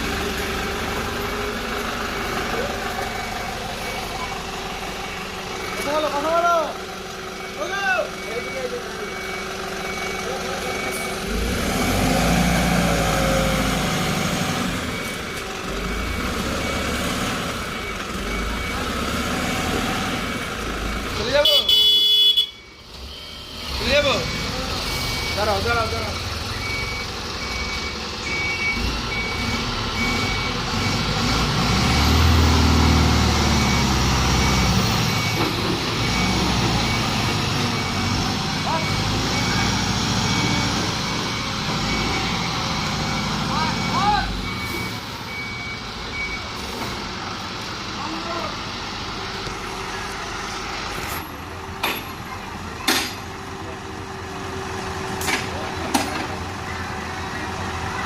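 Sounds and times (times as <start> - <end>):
truck diesel engine revving: 0.0 - 21.5, 22.8 - 58.0
faint reversing beeps: 2.2 - 12.0, 12.8 - 47.0.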